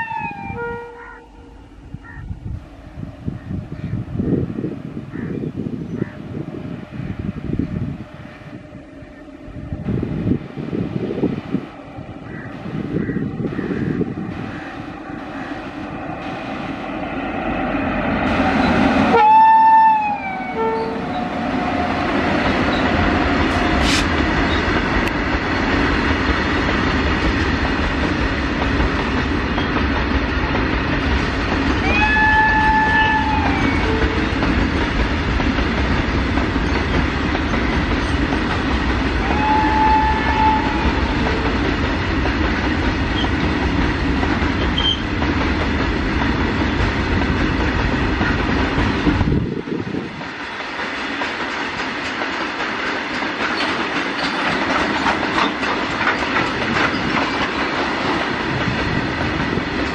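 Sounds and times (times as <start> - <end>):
locomotive horn blasts: 0.0 - 1.6, 19.0 - 21.9, 31.8 - 34.4, 39.2 - 41.6.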